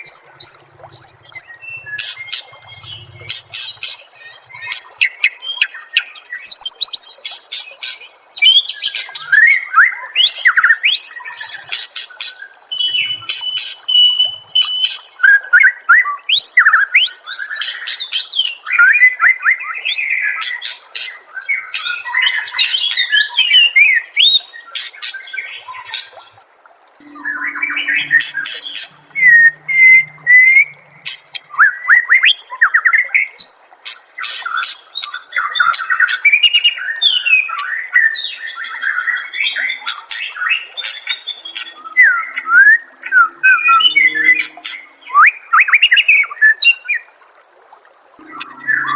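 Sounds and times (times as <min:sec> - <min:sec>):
songbird singing whistles and rattles: 0:06.4 - 0:07.1.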